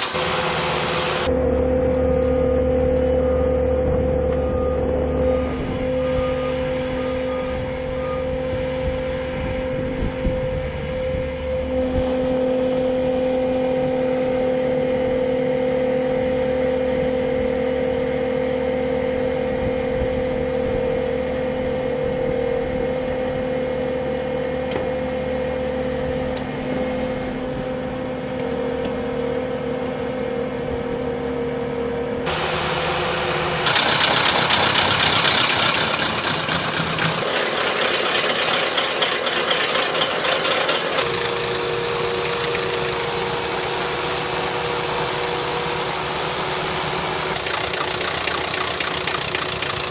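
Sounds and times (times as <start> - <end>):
loud rushing grinding noise: 0.0 - 1.4, 32.3 - 49.9
heavy machine engine running: 0.0 - 20.0, 32.2 - 49.9
constant whine: 0.0 - 49.9.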